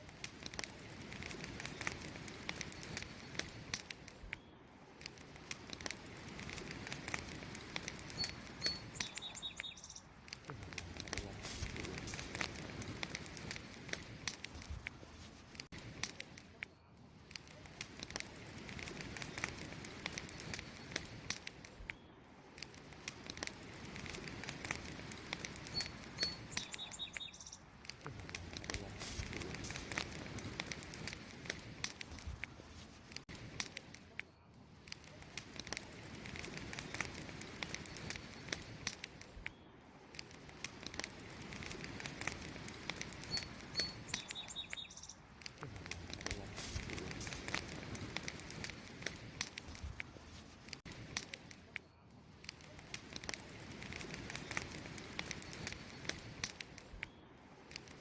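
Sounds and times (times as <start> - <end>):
campfire crackling and popping: 0.0 - 58.0
bird chirping: 8.1 - 10.1, 25.7 - 27.7, 43.2 - 45.3.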